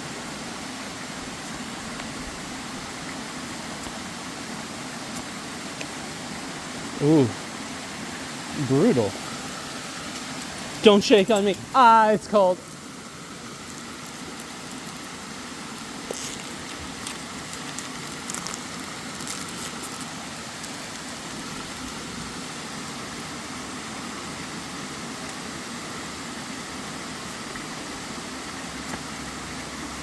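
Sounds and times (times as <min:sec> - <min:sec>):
waterfall roaring: 0:00.0 - 0:30.0
faint ticks and crinkles: 0:09.1 - 0:11.7, 0:12.6 - 0:23.0.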